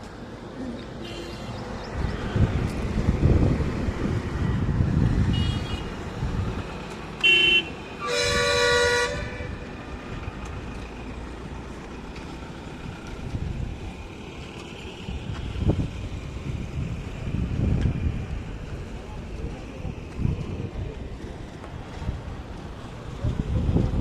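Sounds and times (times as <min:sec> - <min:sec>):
passing road traffic rumble: 0:00.0 - 0:24.0
vehicle horn honking: 0:01.0 - 0:01.6, 0:05.3 - 0:05.9, 0:07.2 - 0:09.6.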